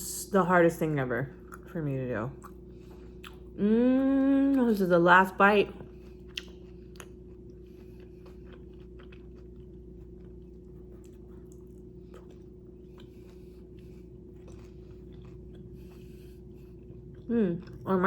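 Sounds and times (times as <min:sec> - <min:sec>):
steady low hum: 0:00.0 - 0:18.0
person chewing food: 0:02.4 - 0:03.6, 0:05.7 - 0:18.0.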